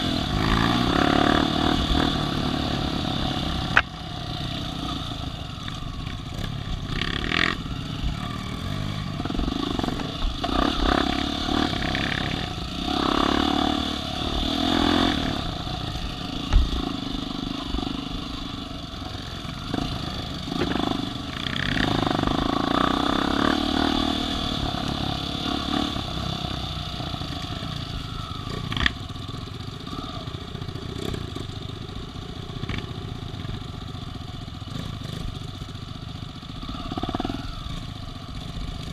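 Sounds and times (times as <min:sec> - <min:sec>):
off-road vehicle engine revving: 0:00.0 - 0:05.3, 0:06.4 - 0:18.4, 0:19.6 - 0:29.0.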